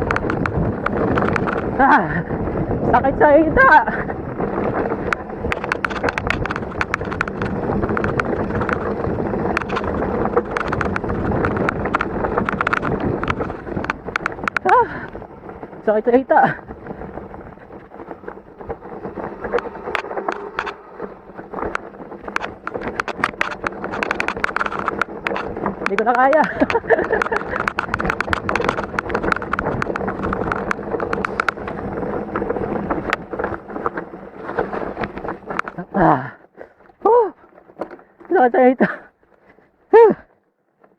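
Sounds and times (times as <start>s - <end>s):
wind buffeting microphone: 0.0s - 38.9s
rocks and bike rattling: 0.0s - 40.9s
tyres grinding over stones: 4.1s - 36.2s.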